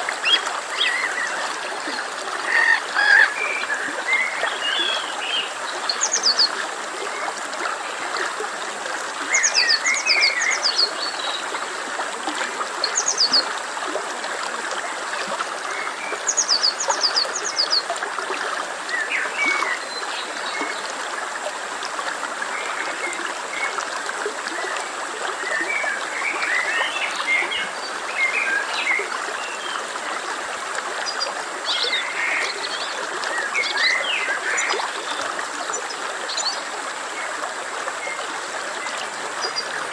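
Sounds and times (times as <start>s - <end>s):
stream flowing: 0.0s - 39.9s
birds calling: 2.4s - 5.4s.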